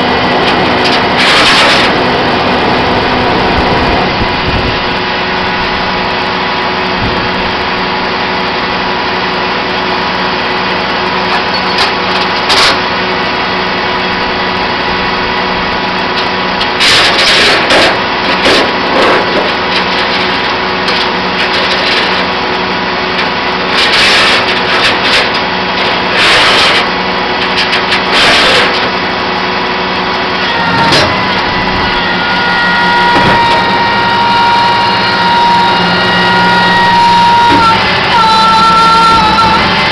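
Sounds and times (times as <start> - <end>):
diesel truck engine running: 0.0 - 39.9
steady whine: 0.0 - 39.9.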